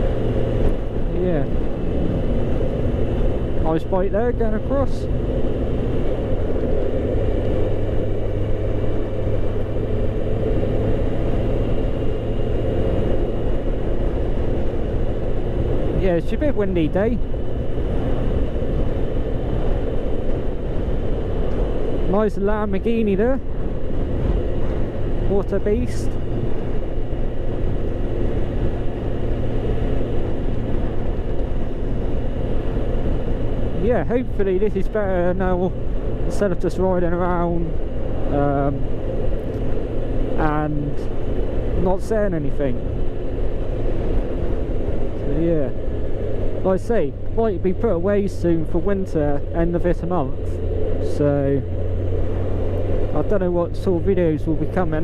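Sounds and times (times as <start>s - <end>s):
motorcycle engine hum: 0.0s - 55.0s
wind and road noise: 0.0s - 55.0s.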